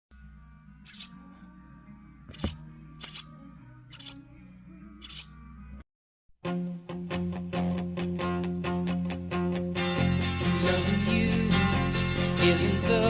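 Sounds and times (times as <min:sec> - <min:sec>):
soft low background music: 0:00.1 - 0:05.8
small bird chirping: 0:00.8 - 0:01.3, 0:02.3 - 0:04.4, 0:05.0 - 0:05.4.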